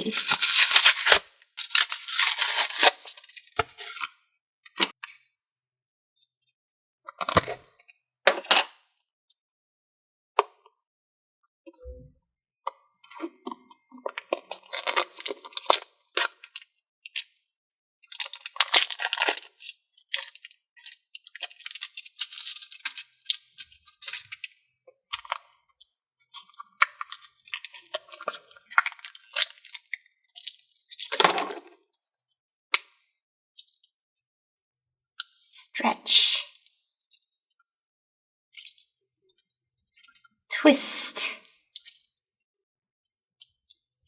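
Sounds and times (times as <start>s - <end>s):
putty crackling and popping: 0.0s - 3.2s.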